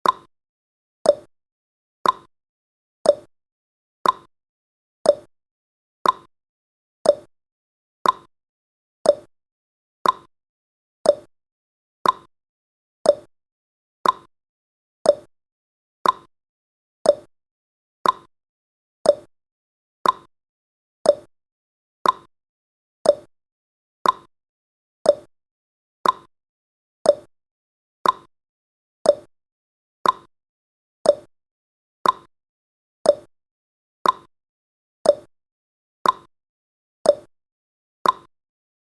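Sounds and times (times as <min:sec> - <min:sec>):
clock tick-tock clicks: 0:00.0 - 0:00.3, 0:01.0 - 0:01.3, 0:02.0 - 0:02.3, 0:03.0 - 0:03.3, 0:04.0 - 0:04.3, 0:05.0 - 0:05.3, 0:06.0 - 0:06.3, 0:07.0 - 0:07.3, 0:08.0 - 0:08.3, 0:09.0 - 0:09.3, 0:10.0 - 0:10.3, 0:11.0 - 0:11.3, 0:12.0 - 0:12.3, 0:13.0 - 0:13.3, 0:14.0 - 0:14.3, 0:15.0 - 0:15.3, 0:16.0 - 0:16.3, 0:17.0 - 0:17.3, 0:18.0 - 0:18.3, 0:19.0 - 0:19.3, 0:20.0 - 0:20.3, 0:21.0 - 0:21.3, 0:22.0 - 0:22.3, 0:23.0 - 0:23.3, 0:24.0 - 0:24.3, 0:25.0 - 0:25.3, 0:26.0 - 0:26.3, 0:27.0 - 0:27.3, 0:28.0 - 0:28.3, 0:29.0 - 0:29.3, 0:30.0 - 0:30.3, 0:31.0 - 0:31.3, 0:32.0 - 0:32.3, 0:33.0 - 0:33.3, 0:34.0 - 0:34.3, 0:35.0 - 0:35.3, 0:36.0 - 0:36.3, 0:37.0 - 0:37.3, 0:38.0 - 0:38.3.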